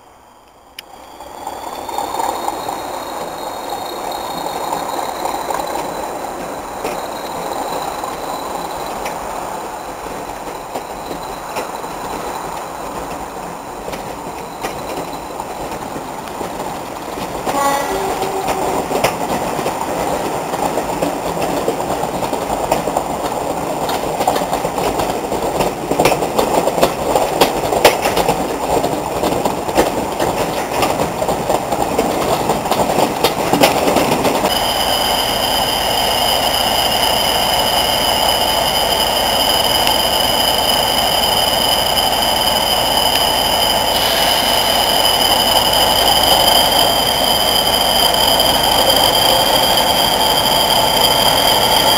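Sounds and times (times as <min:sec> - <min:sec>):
train wheels clattering over rail joints: 0:01.8 - 0:51.9
turbocharger whistle: 0:34.5 - 0:51.9.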